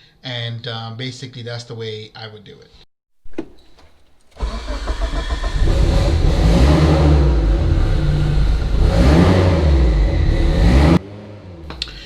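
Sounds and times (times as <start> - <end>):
car engine revving: 3.7 - 12.0.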